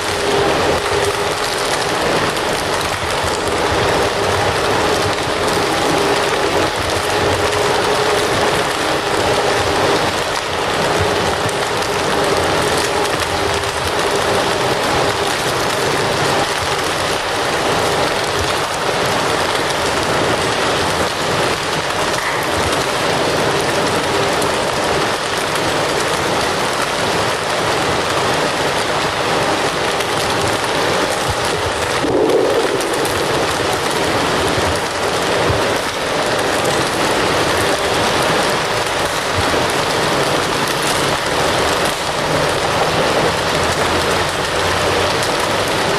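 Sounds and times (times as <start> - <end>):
wood fire crackling: 0.0 - 45.9
fire pop: 22.1 - 22.9, 31.1 - 36.0.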